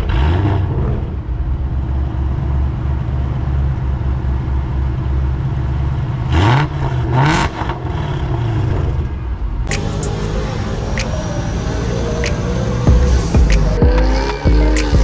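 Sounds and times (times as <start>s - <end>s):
car engine rumbling and revving: 0.0s - 15.0s
music: 12.0s - 15.0s.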